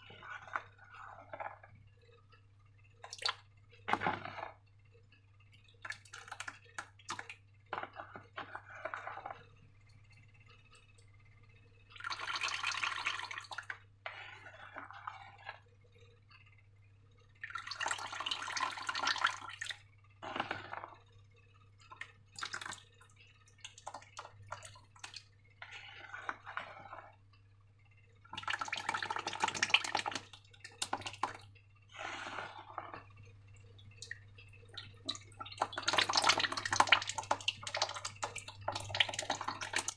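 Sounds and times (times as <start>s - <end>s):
slime squelching and pouring: 0.0s - 1.7s, 3.0s - 4.6s, 5.5s - 9.4s, 11.9s - 15.6s, 17.4s - 21.0s, 21.8s - 27.2s, 28.3s - 39.9s.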